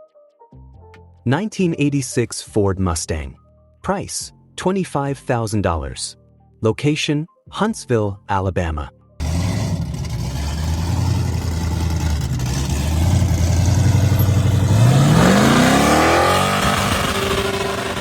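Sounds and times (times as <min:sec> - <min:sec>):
car engine idling and revving: 0:09.2 - 0:18.0.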